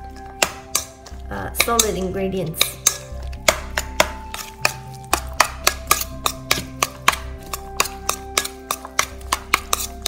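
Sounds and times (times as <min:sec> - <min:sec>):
background music: 0:00.0 - 0:10.0
chopsticks clicking on metal bowl: 0:00.4 - 0:10.0.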